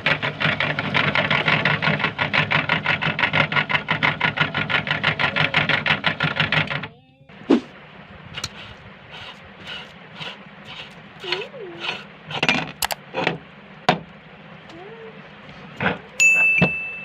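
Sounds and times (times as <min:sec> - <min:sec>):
meat grinder pulsing: 0:00.0 - 0:06.8, 0:08.3 - 0:13.0.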